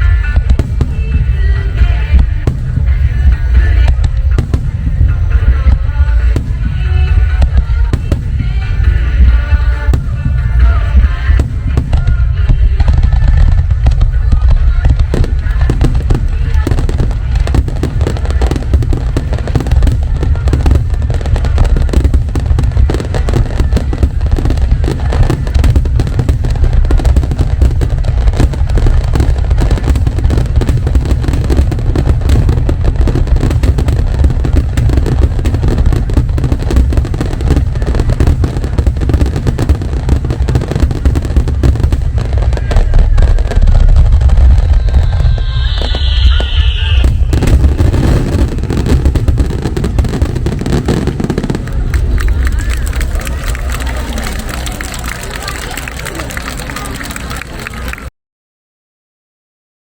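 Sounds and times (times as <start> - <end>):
fireworks booming and crackling: 0.0 - 58.1
high whistle falling in pitch: 44.6 - 48.4.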